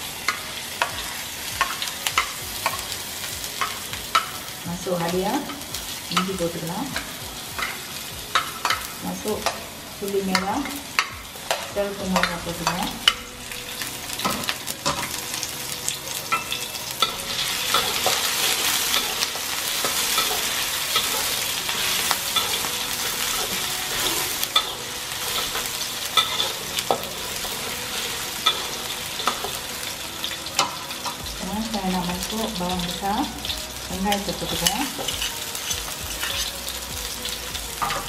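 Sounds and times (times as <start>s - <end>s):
food sizzling in a wok: 0.0s - 38.0s
metal spatula scraping a pan: 16.1s - 33.2s, 34.0s - 36.7s.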